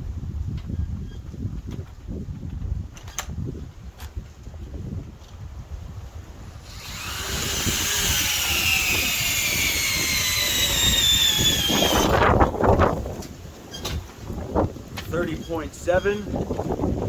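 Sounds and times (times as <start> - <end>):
hammer drill motor whine: 6.6 - 12.6.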